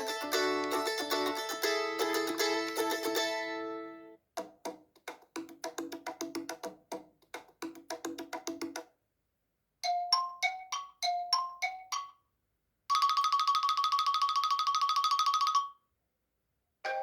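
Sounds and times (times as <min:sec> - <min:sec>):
plucked-string ringtone: 0:00.0 - 0:04.1
wood-block percussion ringtone: 0:09.8 - 0:12.2, 0:12.9 - 0:15.8.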